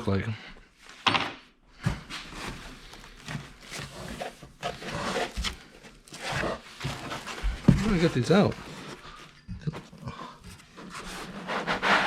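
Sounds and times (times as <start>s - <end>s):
plastic packaging rustling: 2.3s - 9.3s.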